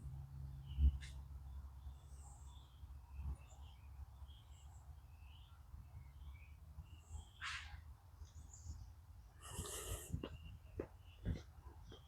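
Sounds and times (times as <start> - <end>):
birds chirping: 8.2 - 12.0.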